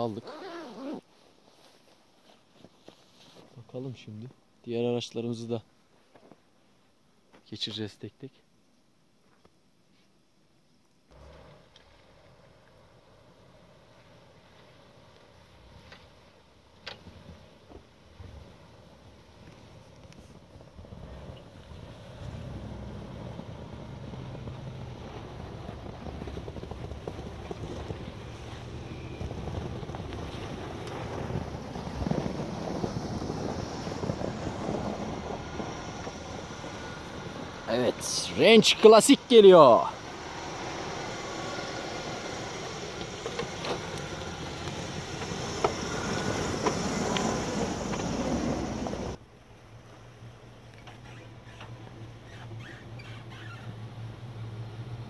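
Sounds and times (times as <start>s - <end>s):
vehicle engine at low revs: 11.1s - 55.0s
crackles: 23.4s - 49.2s, 49.8s - 53.8s.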